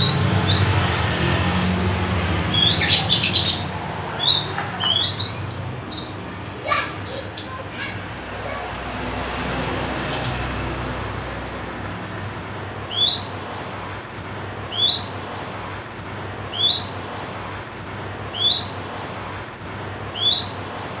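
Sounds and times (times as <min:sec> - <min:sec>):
bird upward-sweeping chirp: 0:14.7 - 0:15.1, 0:16.5 - 0:17.3, 0:18.4 - 0:19.1, 0:20.2 - 0:20.9.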